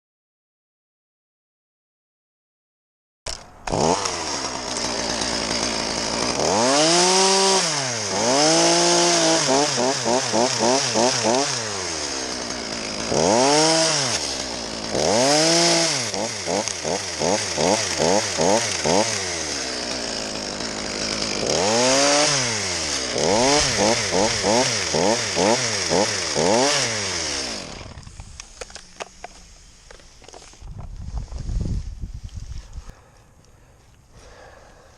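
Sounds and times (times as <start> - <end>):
two-stroke chainsaw revving: 3.3 - 30.6.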